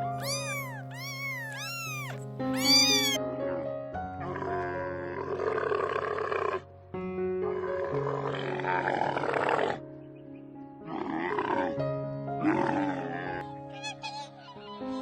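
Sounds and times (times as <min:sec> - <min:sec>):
rough animal calls: 0:00.0 - 0:03.2.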